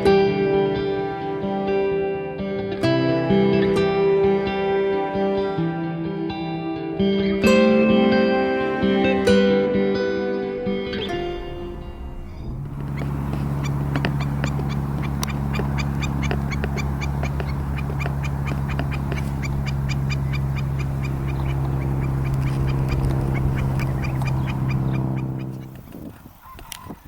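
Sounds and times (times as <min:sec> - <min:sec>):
steady low hum: 0:10.4 - 0:26.1
stilts calling: 0:10.9 - 0:27.0.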